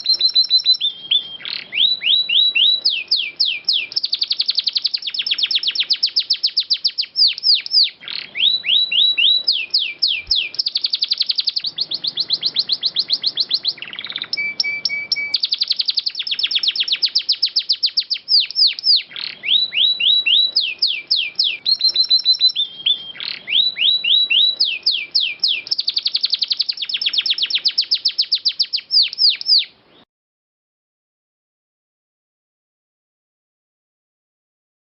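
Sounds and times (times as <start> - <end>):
canary singing trills: 0.0 - 30.0.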